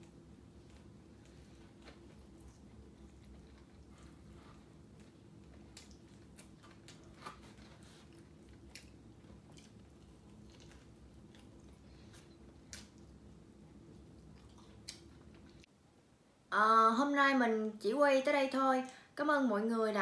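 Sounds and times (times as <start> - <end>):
mouth chewing sounds: 0.8 - 13.2, 14.0 - 15.7.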